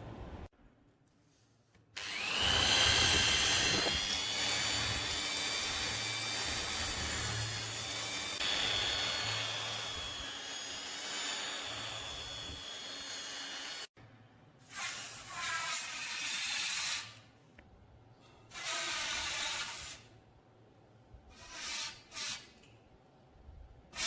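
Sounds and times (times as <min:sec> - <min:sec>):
electric power tool whining: 0:02.0 - 0:13.9.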